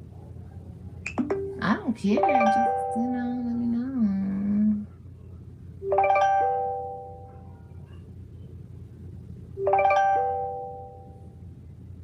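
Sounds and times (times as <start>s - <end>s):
phone ringing chime: 2.2s - 3.3s, 9.6s - 11.2s.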